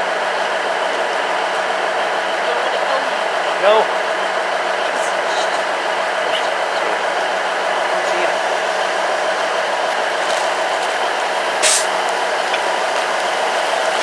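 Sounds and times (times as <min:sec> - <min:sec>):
steam locomotive hissing: 0:01.7 - 0:14.0
sharp steam hiss: 0:11.6 - 0:12.1.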